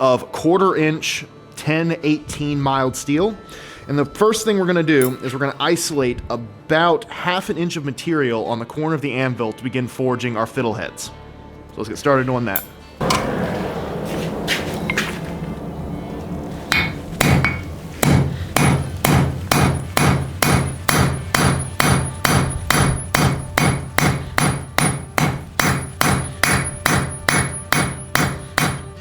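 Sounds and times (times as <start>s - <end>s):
hammer striking steel on anvil: 5.0s - 5.4s, 12.5s - 29.0s.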